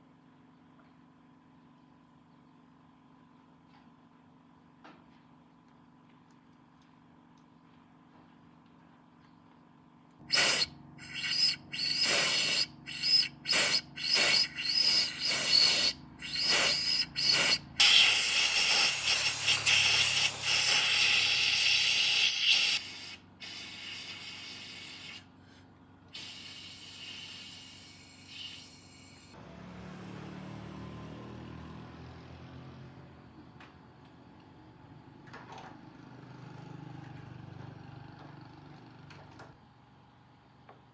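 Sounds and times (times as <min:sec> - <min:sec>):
hissing spray: 0:10.3 - 0:25.2, 0:26.2 - 0:29.4.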